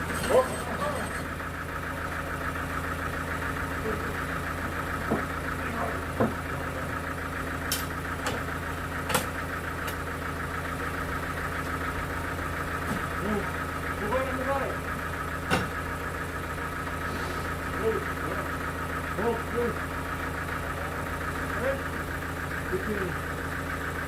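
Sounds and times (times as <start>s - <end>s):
engine idling: 0.0s - 24.0s
sharp clicks and knocks: 7.7s - 10.0s.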